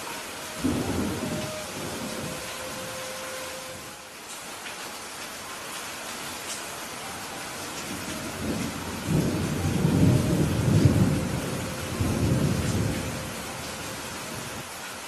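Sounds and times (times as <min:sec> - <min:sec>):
steady rain: 0:00.0 - 0:15.0
rolling thunder: 0:00.6 - 0:03.0, 0:07.9 - 0:14.6.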